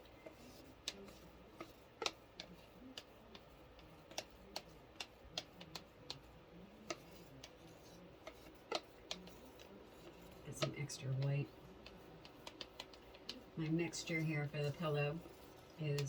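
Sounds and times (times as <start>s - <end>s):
low room hum: 0.0s - 16.0s
light clicks and taps: 0.2s - 6.3s, 6.9s - 13.4s.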